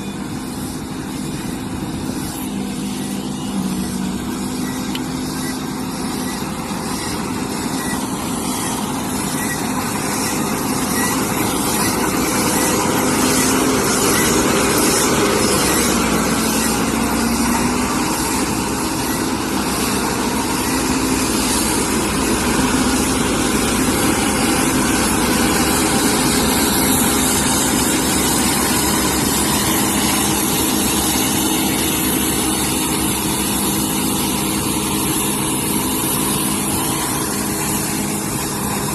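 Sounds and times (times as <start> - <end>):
combine harvester engine drone: 0.0 - 38.9.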